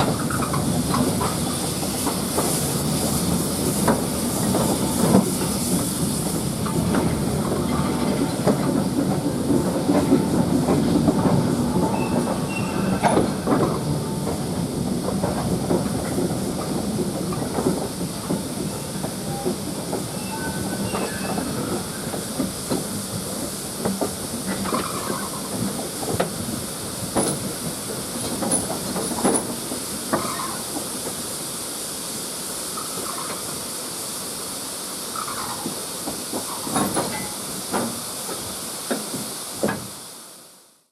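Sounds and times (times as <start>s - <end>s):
train rumble: 0.0s - 40.5s
steam hissing: 0.0s - 40.8s
wheels clicking over rail joints: 20.8s - 31.2s, 35.2s - 39.9s.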